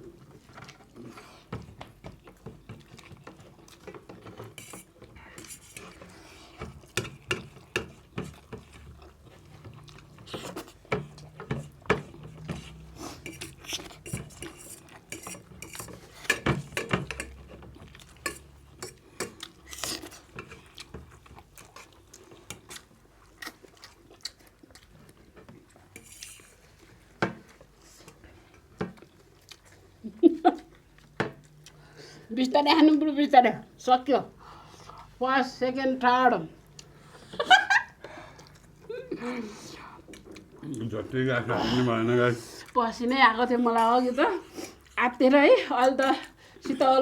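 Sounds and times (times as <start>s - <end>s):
cutlery clinking on plates: 13.2s - 17.5s.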